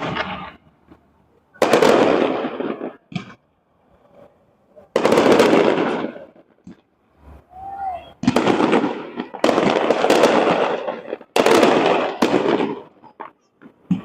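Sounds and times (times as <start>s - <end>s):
fireworks bursts with crackle: 0.0s - 14.0s
sharp firework pops: 1.6s - 3.4s, 5.0s - 6.9s, 8.1s - 14.0s.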